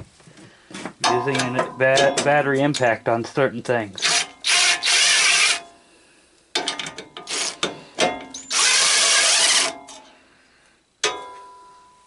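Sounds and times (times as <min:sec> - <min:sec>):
impact driver bursts: 0:04.0 - 0:05.7, 0:08.3 - 0:09.8.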